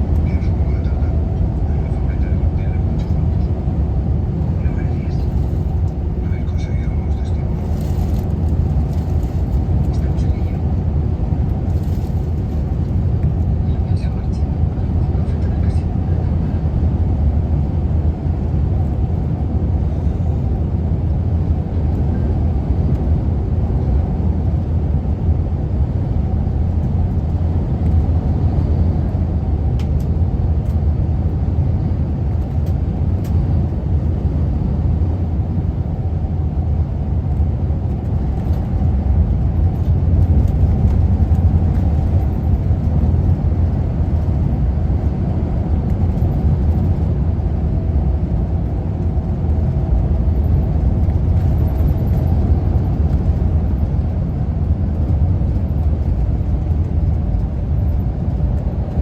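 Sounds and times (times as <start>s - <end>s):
wind buffeting microphone: 20.4s - 59.0s.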